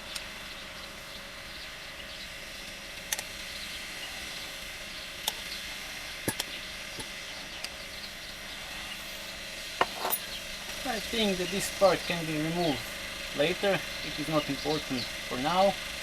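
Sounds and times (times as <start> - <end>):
steady background hiss: 0.0 - 16.0
tools clicking and knocking: 9.8 - 10.3.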